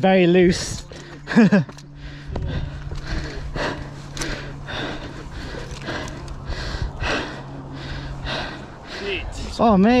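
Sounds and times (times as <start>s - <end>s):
person breathing hard: 1.9s - 9.6s.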